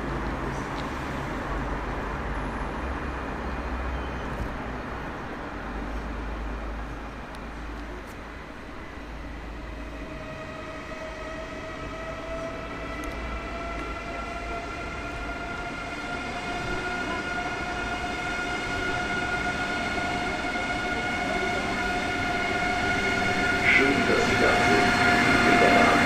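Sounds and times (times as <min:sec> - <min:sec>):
train rolling rumble: 0:00.0 - 0:26.0
electric train whine: 0:08.4 - 0:26.0.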